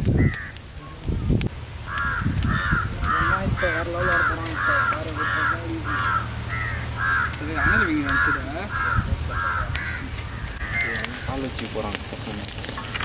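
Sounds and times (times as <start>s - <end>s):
bird calling: 0.1s - 13.0s.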